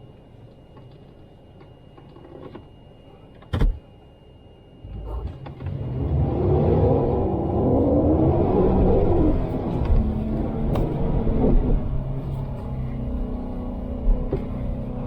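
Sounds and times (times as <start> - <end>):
vehicle engine idling and revving: 4.8 - 15.0.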